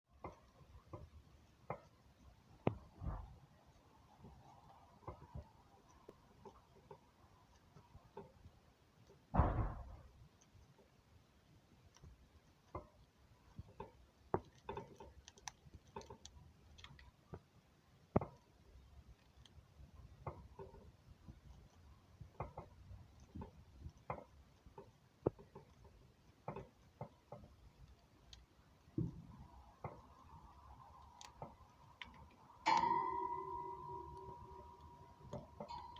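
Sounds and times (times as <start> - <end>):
faint clicks and taps: 0.2 - 33.0
knocks: 9.3 - 10.1.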